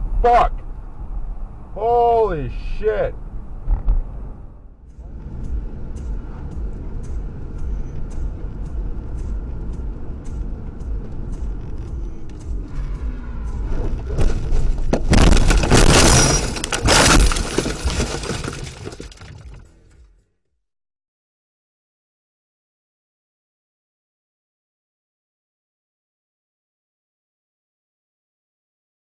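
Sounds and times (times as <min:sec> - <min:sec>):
car road rumble: 0:00.0 - 0:20.1
vehicle crash with breaking glass: 0:14.1 - 0:19.7.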